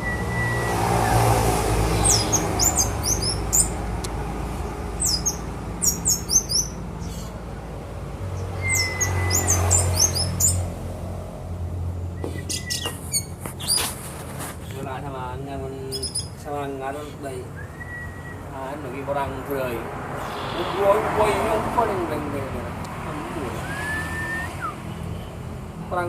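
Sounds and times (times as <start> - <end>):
bird chirping song: 0.0 - 3.9, 4.6 - 10.7, 12.0 - 13.9, 15.8 - 19.0, 20.2 - 21.6.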